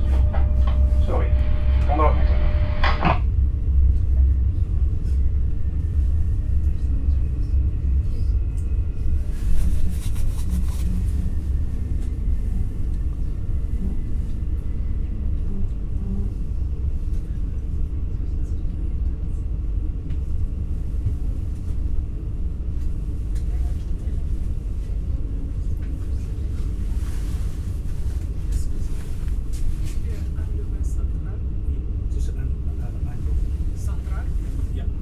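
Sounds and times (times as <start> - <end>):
faint high tones: 0.0 - 2.9
train running gear rumble: 0.0 - 35.0.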